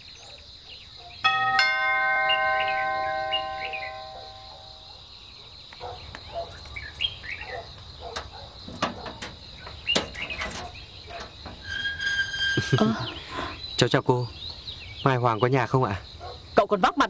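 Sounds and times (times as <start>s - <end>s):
birds chirping: 0.0s - 17.0s
insect drone: 0.0s - 17.0s
doorbell chime: 1.3s - 4.6s
metal gate latch clicking: 8.1s - 12.4s.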